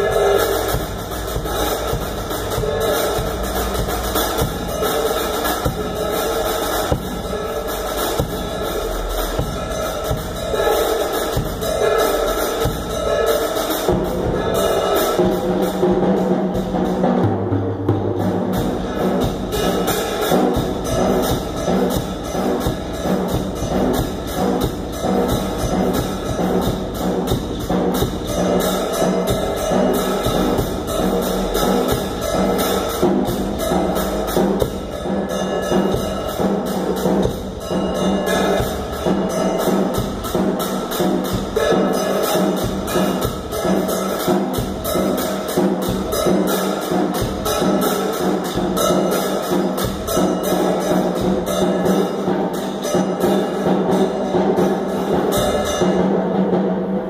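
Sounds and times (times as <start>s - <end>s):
sustained pitched accompaniment: 0.0s - 17.3s
drum kit fast rhythm: 0.0s - 57.0s.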